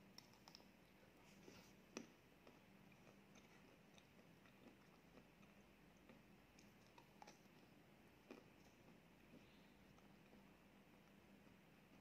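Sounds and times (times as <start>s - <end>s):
low steady hum: 0.0s - 12.0s
mouth clicks from chewing: 1.9s - 9.5s.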